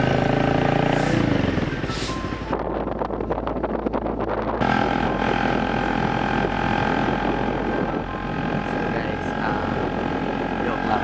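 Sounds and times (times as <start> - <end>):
motor humming: 4.6 - 11.0.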